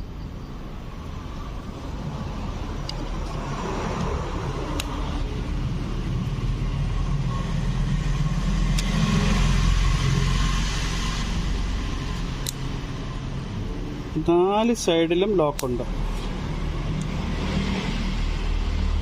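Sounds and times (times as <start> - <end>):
engine running: 0.9 - 14.2.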